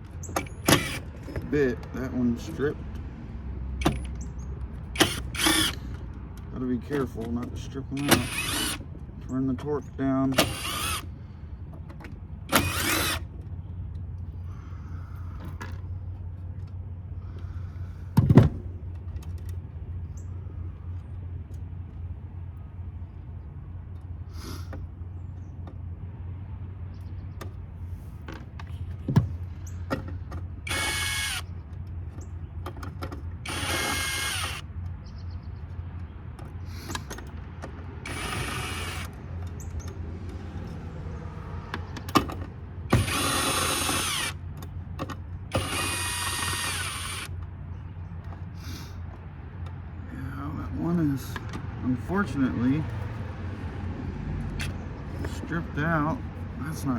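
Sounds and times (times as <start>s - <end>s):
cordless drill backing out screws: 0.2s - 2.6s, 3.8s - 4.2s, 4.9s - 11.1s, 12.5s - 13.3s, 30.0s - 31.5s, 32.8s - 34.6s, 38.0s - 39.2s, 42.0s - 47.4s.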